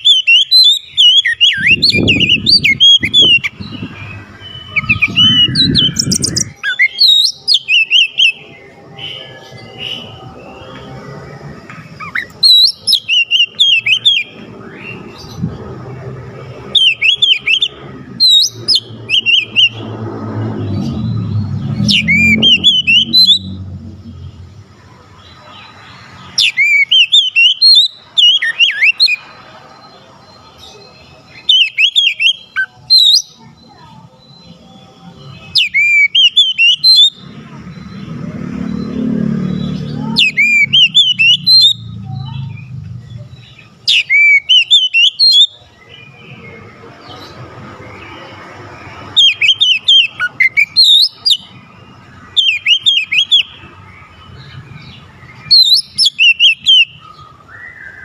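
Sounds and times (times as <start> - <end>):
bird singing whistled phrases: 0.0 - 10.2, 12.0 - 15.2, 16.7 - 19.9, 20.7 - 23.6, 26.4 - 29.2, 31.3 - 34.7, 35.3 - 38.1, 39.6 - 46.3, 49.1 - 51.6, 52.3 - 53.7, 54.9 - 58.0.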